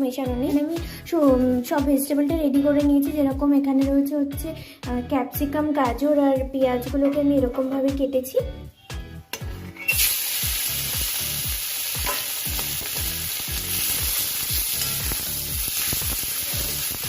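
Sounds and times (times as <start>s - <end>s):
chicken frying in a pan: 9.9s - 17.0s.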